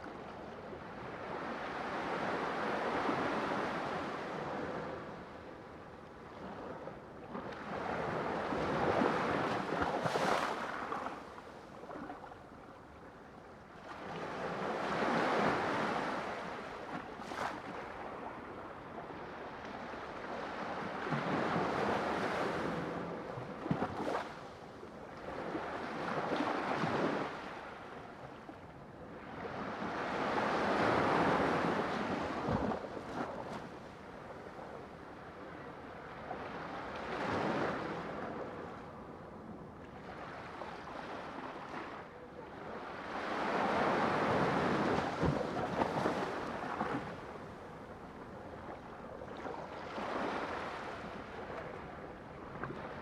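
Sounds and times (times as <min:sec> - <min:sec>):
ocean waves on shore: 0:07.6 - 0:11.6, 0:40.0 - 0:53.0.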